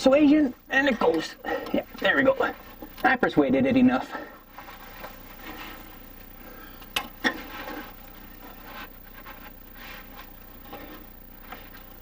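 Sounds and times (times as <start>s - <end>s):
hoses scraping and rubbing: 4.4s - 6.0s, 7.2s - 12.0s.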